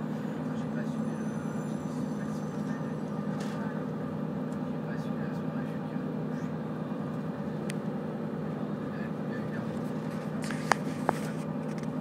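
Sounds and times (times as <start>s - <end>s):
moving train rumble: 0.0s - 12.0s.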